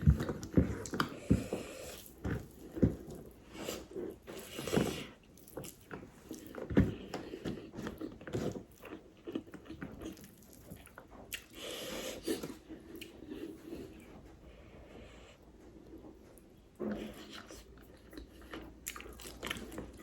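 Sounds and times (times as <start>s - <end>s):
person chewing food: 0.0s - 20.0s.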